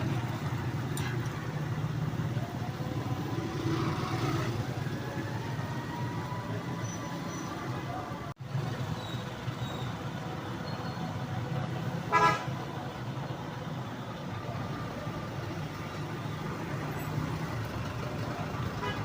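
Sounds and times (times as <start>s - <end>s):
vehicle horn toot: 12.1s - 12.5s.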